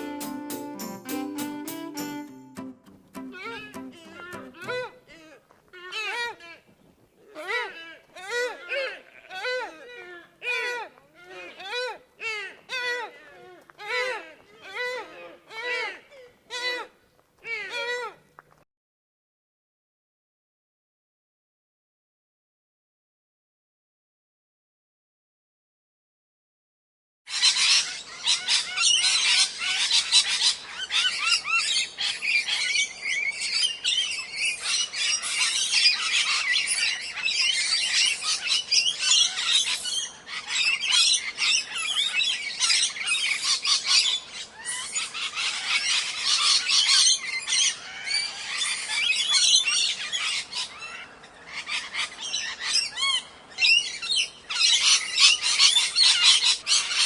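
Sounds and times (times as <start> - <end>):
flock of birds chirping: 27.3 - 57.0.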